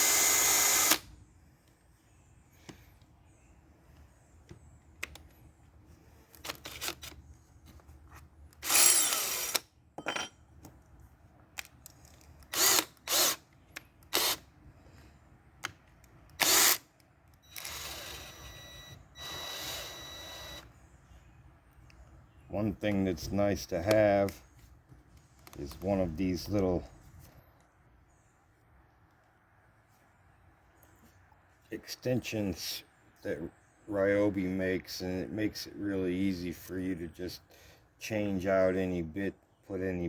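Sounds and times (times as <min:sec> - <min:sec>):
cordless drill motor whirring: 0:00.0 - 0:01.1, 0:08.6 - 0:09.6, 0:12.4 - 0:13.4, 0:14.1 - 0:14.4, 0:16.3 - 0:16.8, 0:17.4 - 0:20.7.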